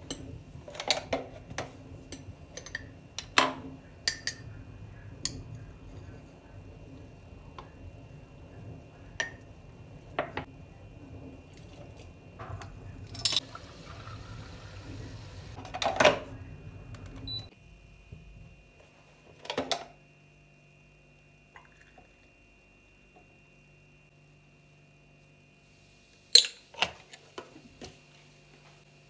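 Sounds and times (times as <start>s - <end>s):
low steady hum: 0.0s - 19.4s.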